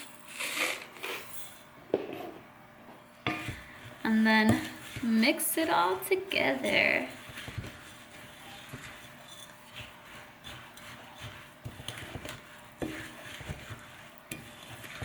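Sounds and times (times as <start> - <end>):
spoon stirring in a bowl: 3.2 - 15.0.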